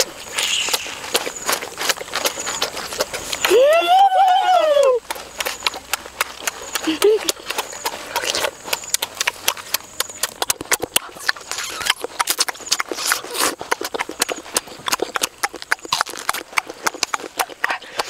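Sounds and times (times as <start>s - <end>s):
lip-smacking and chewing: 0.0s - 18.0s.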